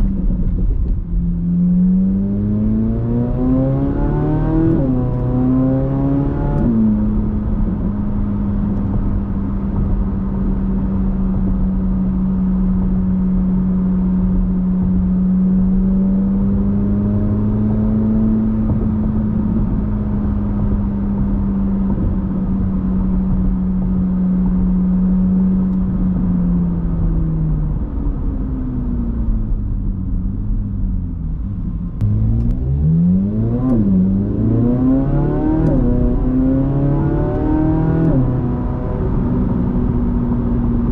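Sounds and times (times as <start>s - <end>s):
sports car exhaust with upshifts: 0.0s - 40.9s.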